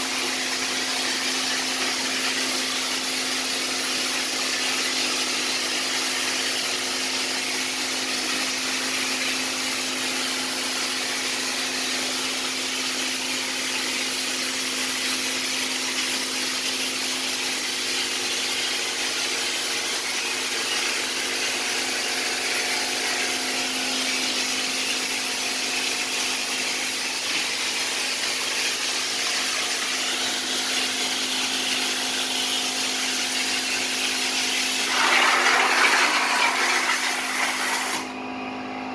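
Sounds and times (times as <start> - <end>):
power tool motor running: 34.6 - 38.2.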